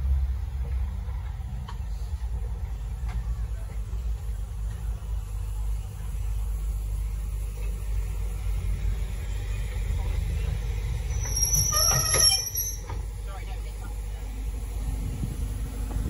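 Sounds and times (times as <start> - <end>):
train carriages rumbling past: 0.0 - 16.0
high squeal: 11.1 - 13.0.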